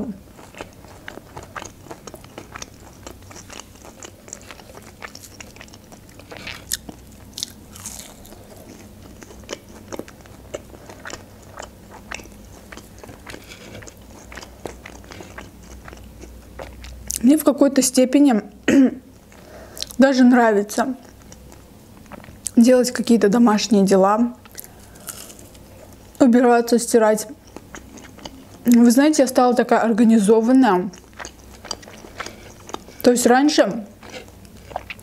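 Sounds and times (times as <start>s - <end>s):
crunchy biting and chewing: 0.4s - 17.2s, 24.4s - 26.0s.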